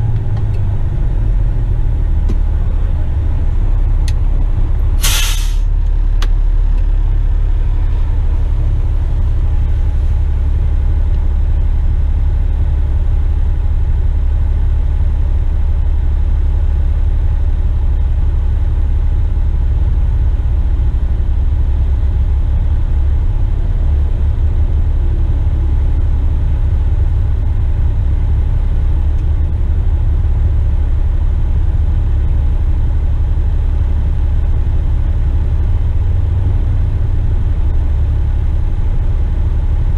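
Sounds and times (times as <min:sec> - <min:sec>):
diesel truck engine rumbling: 0:00.0 - 0:39.9
short sharp hiss: 0:05.0 - 0:05.7.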